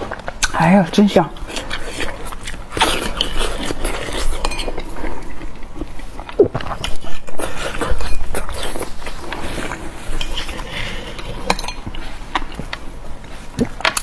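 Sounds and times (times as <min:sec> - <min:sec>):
person chewing: 0:00.0 - 0:00.7, 0:01.3 - 0:14.0.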